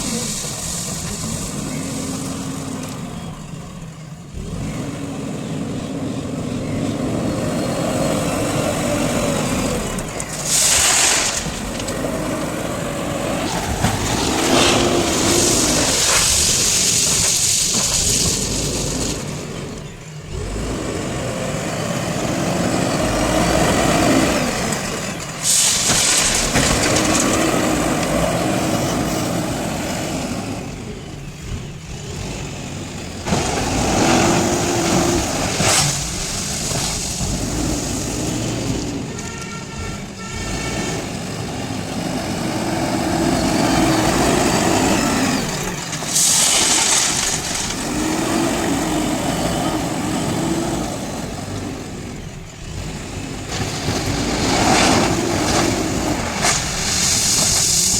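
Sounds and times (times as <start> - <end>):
diesel engine revving under load: 0.0 - 57.9
hydraulic hissing and rattling: 10.2 - 19.3, 24.4 - 29.6, 33.0 - 38.6, 43.4 - 50.0, 53.5 - 57.9.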